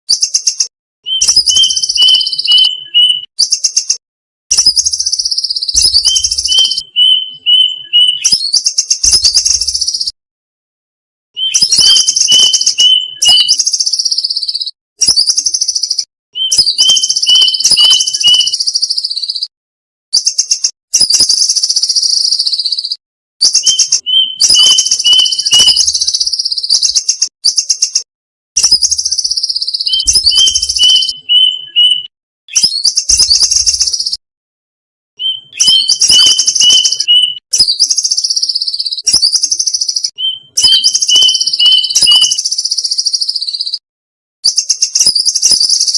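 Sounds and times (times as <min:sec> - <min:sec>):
cuckoo calling: 0:01.1 - 0:03.3, 0:05.8 - 0:08.4, 0:11.4 - 0:13.6, 0:23.5 - 0:26.1, 0:29.8 - 0:32.1, 0:35.2 - 0:37.4, 0:40.2 - 0:42.4.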